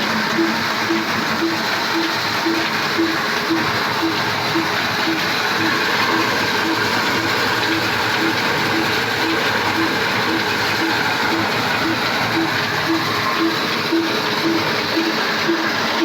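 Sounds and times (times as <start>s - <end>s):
machine clatter with regular knock: 0.0s - 16.0s.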